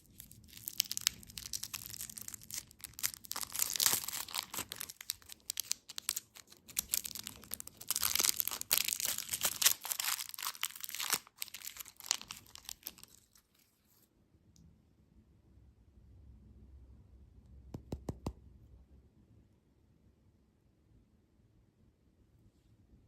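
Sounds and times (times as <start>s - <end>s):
plastic packaging crinkling: 0.0s - 13.6s.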